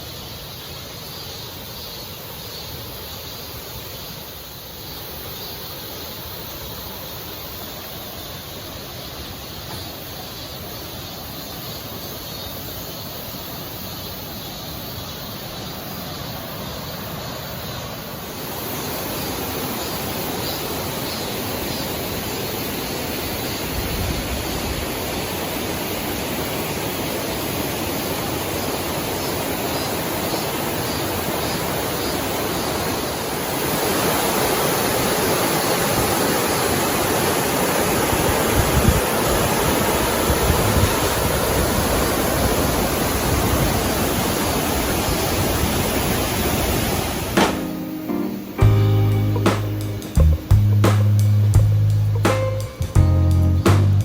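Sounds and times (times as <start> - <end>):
stream rushing over rocks: 14.9 - 47.8.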